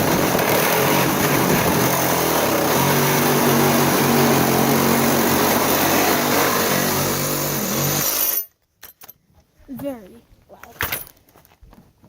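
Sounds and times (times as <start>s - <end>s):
power saw cutting metal: 0.0s - 8.4s.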